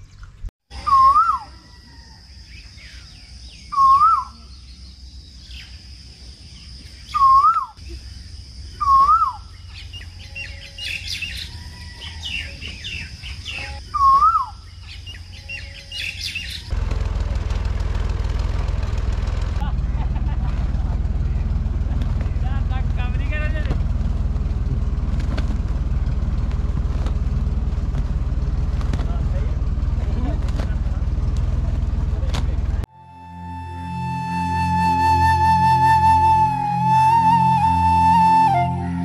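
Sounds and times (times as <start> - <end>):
high bird chirps: 0.0 - 5.9, 6.5 - 16.7
bird whistled call: 0.7 - 2.0, 2.8 - 4.7, 7.0 - 7.9, 8.7 - 16.7, 33.0 - 39.0
tractor engine rumbling: 6.4 - 39.0.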